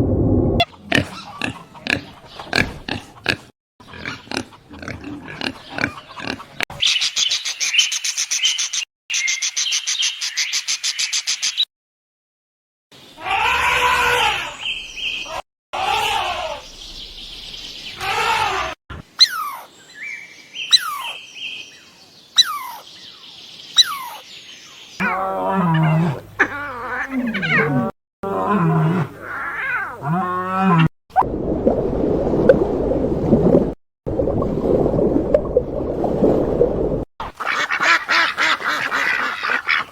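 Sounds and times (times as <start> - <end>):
farm animal calls: 0.6 - 7.0, 25.0 - 27.9.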